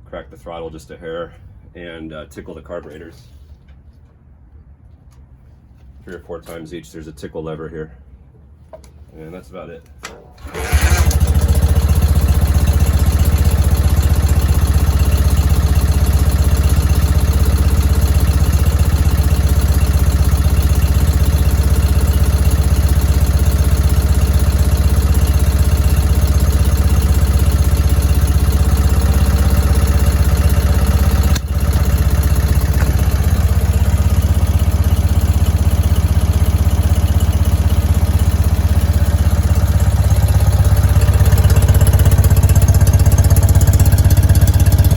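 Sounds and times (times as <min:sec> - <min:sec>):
motorcycle engine running: 0:10.4 - 0:44.9.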